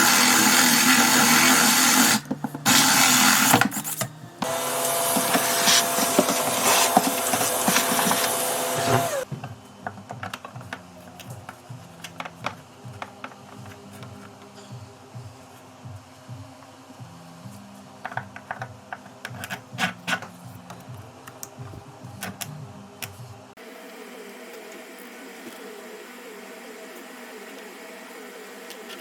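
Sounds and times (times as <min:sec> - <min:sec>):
power tool motor running: 0:00.0 - 0:03.7, 0:04.4 - 0:09.3.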